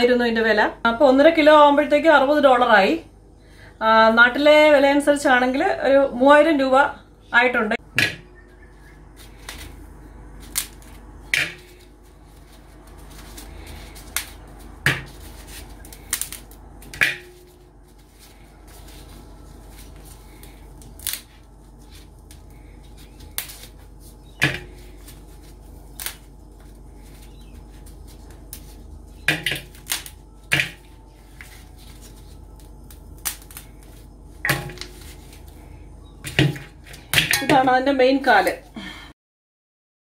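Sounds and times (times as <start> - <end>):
crab shell cracking: 13.9 - 17.0, 20.2 - 21.4, 22.2 - 26.3, 28.4 - 34.1
crab pieces dropping into metal bowl: 36.3 - 37.7.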